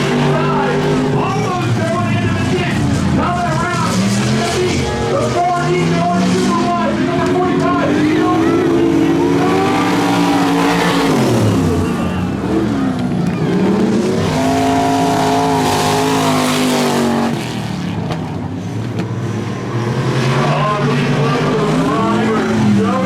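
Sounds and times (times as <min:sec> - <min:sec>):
race car engines at full throttle: 0:00.0 - 0:23.0.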